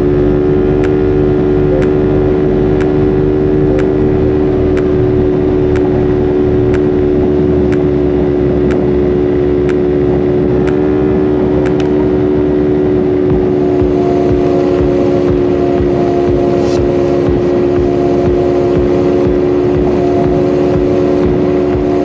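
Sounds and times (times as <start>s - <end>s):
sharp ticking: 0.8s - 1.1s, 1.8s - 2.1s, 3.8s - 4.1s, 4.8s - 5.2s, 5.8s - 6.2s, 6.8s - 7.1s, 10.7s - 10.9s, 11.7s - 12.0s.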